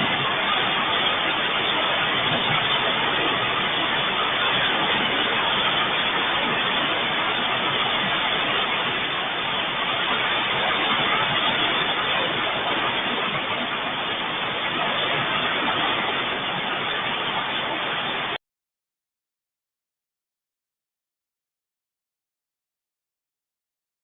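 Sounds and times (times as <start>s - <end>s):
heavy rain: 0.0s - 18.4s.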